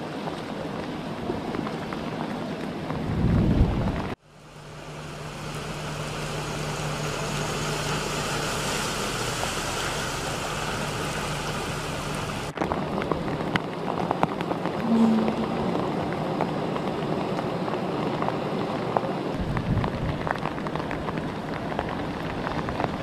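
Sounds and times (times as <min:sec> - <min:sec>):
floodwater: 0:00.0 - 0:23.0
heavy rain: 0:00.0 - 0:23.0
vehicle engine hum: 0:00.0 - 0:23.0
crackles: 0:03.8 - 0:23.0
brief low tone: 0:14.8 - 0:15.7.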